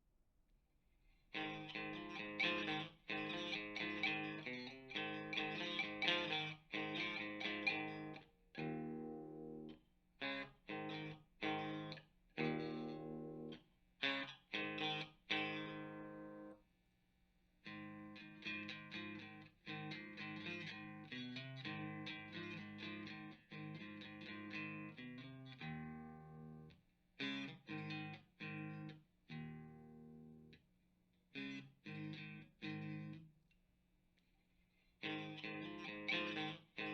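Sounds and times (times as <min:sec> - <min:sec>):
distorted electric guitar chords: 0:01.4 - 0:16.5, 0:35.0 - 0:36.9.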